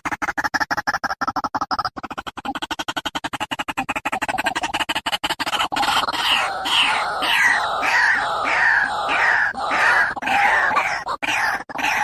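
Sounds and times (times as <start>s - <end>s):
waterhen calling: 5.8s - 12.0s.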